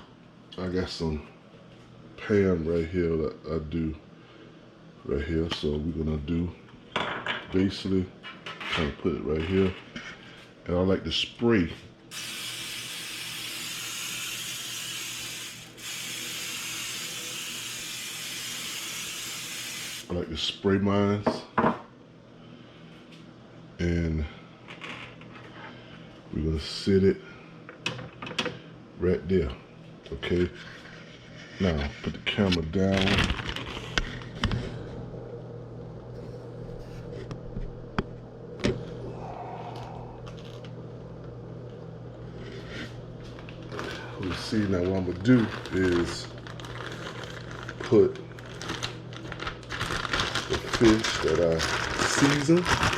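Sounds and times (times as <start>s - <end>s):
low electrical hum: 0.0s - 52.9s.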